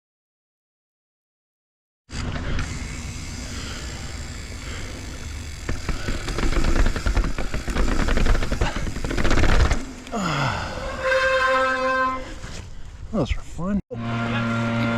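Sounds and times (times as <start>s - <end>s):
bike rattling down stairs: 2.4s - 10.8s.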